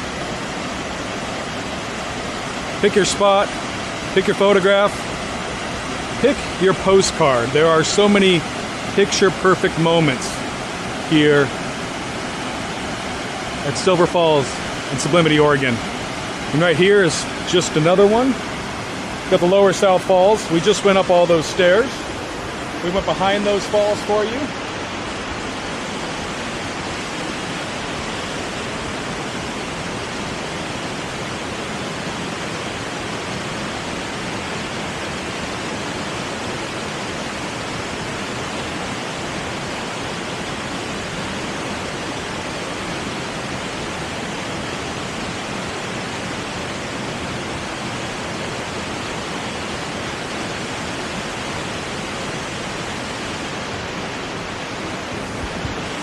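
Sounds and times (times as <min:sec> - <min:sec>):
waterfall pouring into pool: 0:00.0 - 0:22.3.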